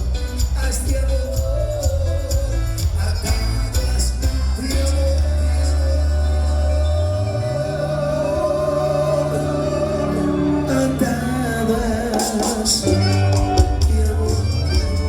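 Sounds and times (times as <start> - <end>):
live band music: 0.0 - 15.0
percussion strikes: 12.0 - 15.0.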